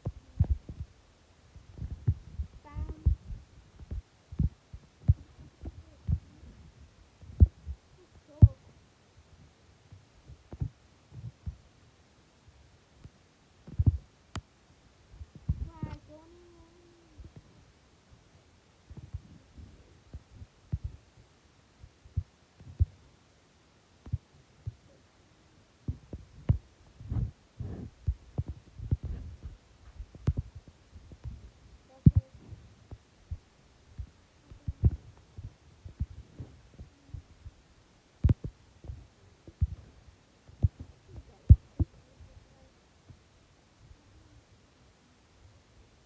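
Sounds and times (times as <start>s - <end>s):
muffled low thumps and knocks: 0.0s - 1.0s, 1.6s - 8.6s, 10.3s - 11.6s, 13.6s - 14.1s, 15.1s - 17.5s, 18.9s - 21.0s, 25.9s - 37.6s, 38.2s - 42.4s.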